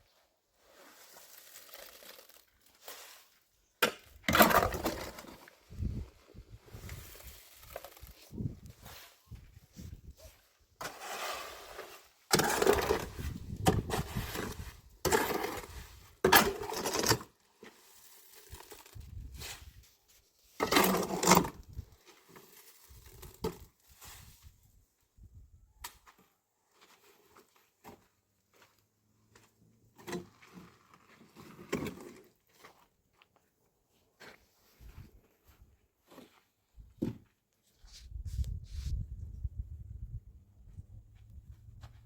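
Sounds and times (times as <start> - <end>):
rough scraping and rattling: 4.2 - 8.9, 10.8 - 19.8, 20.6 - 23.6.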